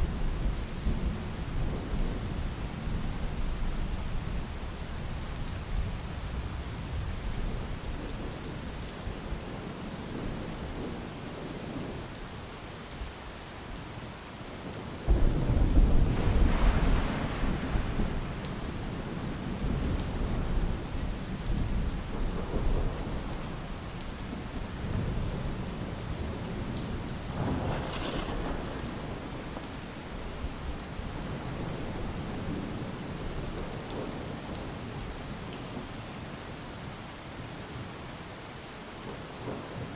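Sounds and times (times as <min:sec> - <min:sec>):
rain falling: 0:00.0 - 0:39.9
thunder rumbling: 0:15.0 - 0:34.2.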